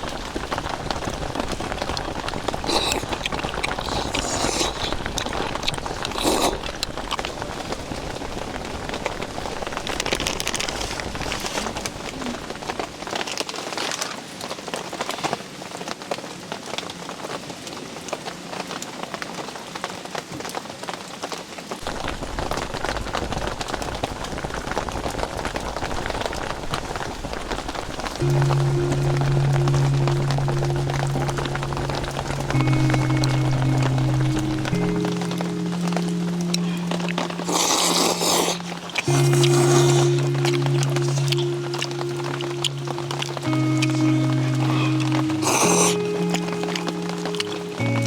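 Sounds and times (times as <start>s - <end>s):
steady rain: 0.0s - 48.0s.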